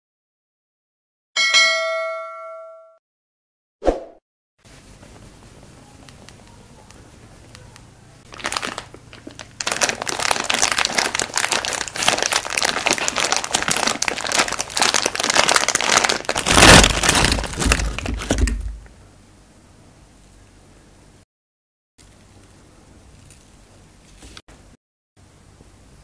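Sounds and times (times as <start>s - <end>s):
frozen fruit crunched and chewed: 8.2s - 18.9s, 22.0s - 24.4s.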